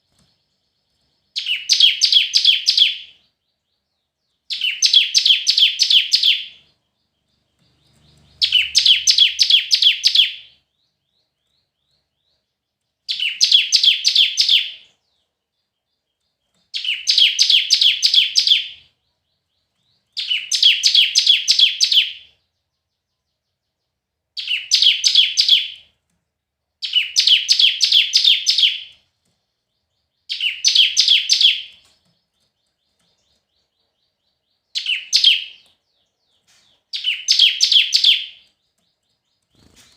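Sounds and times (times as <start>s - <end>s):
bird singing high sharp chirps: 1.3s - 3.3s, 4.5s - 10.9s, 13.1s - 14.9s, 16.8s - 18.9s, 19.5s - 22.4s, 24.4s - 25.8s, 26.8s - 29.0s, 29.7s - 39.9s.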